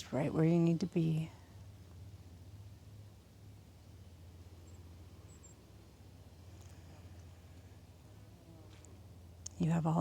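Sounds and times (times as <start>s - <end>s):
steady low hum: 0.0s - 10.0s
faint high chirp: 4.6s - 5.7s.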